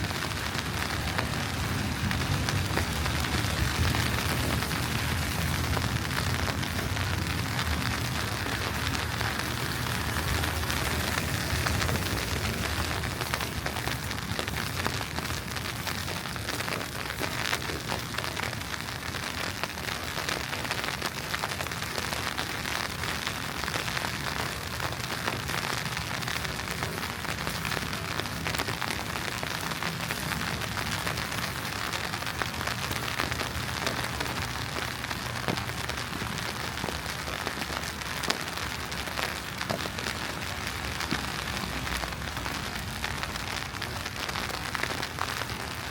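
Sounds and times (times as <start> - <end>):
low city rumble: 0.0 - 45.9
wet snow pattering on street: 0.0 - 45.9.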